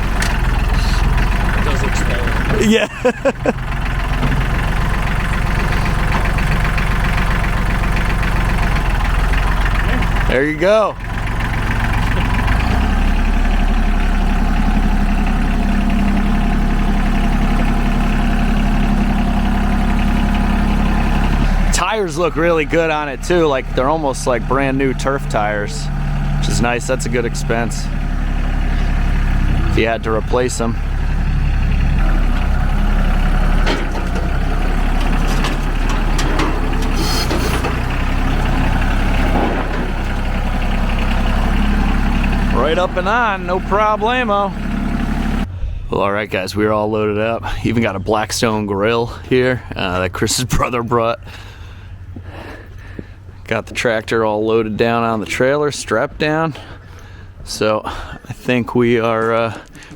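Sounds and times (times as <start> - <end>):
tractor diesel engine running: 0.0 - 59.9
metal clank: 32.0 - 40.9.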